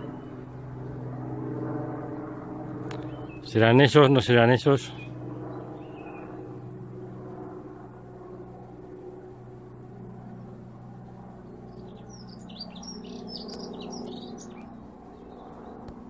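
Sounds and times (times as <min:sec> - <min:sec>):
steady low hum: 0:00.0 - 0:16.0
songbird twittering: 0:02.9 - 0:06.5, 0:11.5 - 0:15.9.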